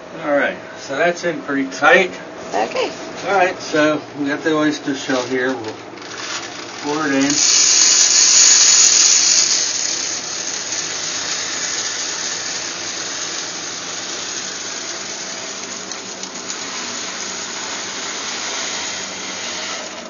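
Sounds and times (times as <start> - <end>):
shell grit rattling down a pipe: 6.0 - 20.0.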